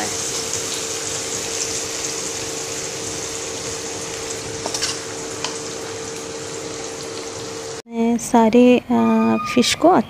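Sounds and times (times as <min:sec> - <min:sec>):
fish sizzling in oil: 0:00.0 - 0:07.8.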